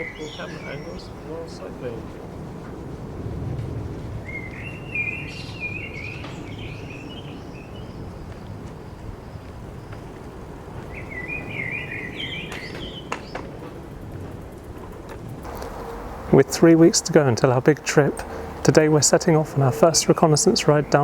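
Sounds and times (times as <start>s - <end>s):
songbird warbling: 0.0s - 1.6s, 4.2s - 10.1s, 10.9s - 13.5s
low background rumble: 0.0s - 13.1s, 13.8s - 21.0s.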